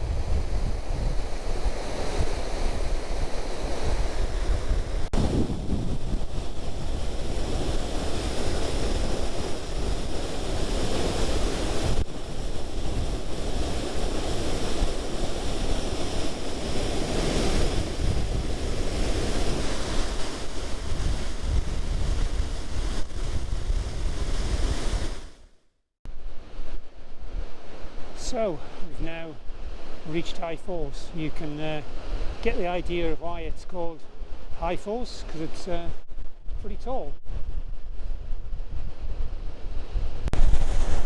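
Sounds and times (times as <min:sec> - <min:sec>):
wind buffeting microphone: 0:00.0 - 0:25.4, 0:35.8 - 0:41.0.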